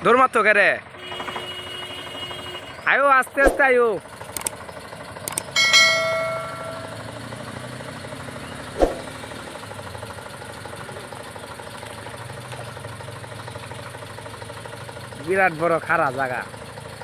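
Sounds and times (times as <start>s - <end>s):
tractor diesel engine running: 0.0s - 17.0s
metallic clang: 5.6s - 7.3s.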